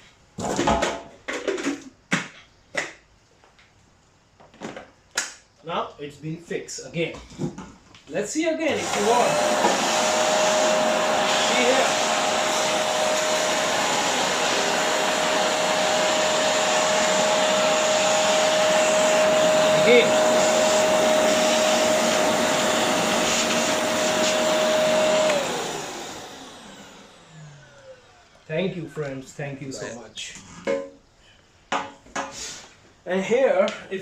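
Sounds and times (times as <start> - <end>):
vacuum cleaner whining: 8.6 - 28.8.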